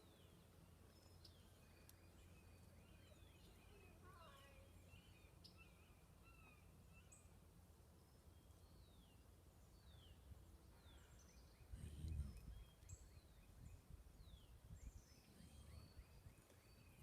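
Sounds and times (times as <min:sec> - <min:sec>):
outdoor background noise: 0:00.0 - 0:17.0
birds whistling and chirping: 0:10.8 - 0:17.0.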